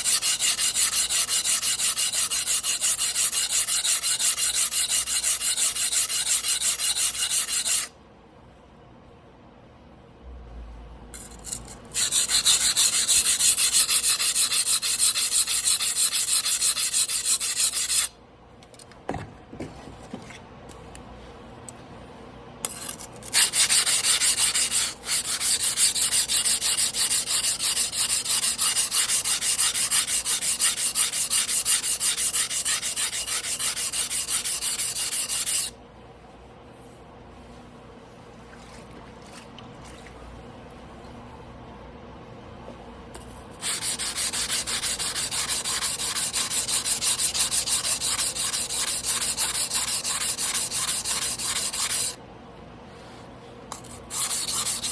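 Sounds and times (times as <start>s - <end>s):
blade scraping on whetstone: 0.0s - 7.9s, 11.2s - 18.1s, 22.7s - 35.7s, 43.6s - 52.2s, 53.8s - 54.9s.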